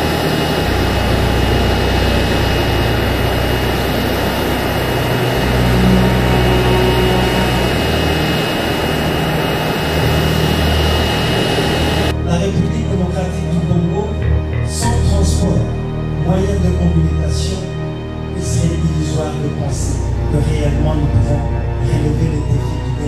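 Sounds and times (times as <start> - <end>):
jet engines rushing: 0.0 - 12.2.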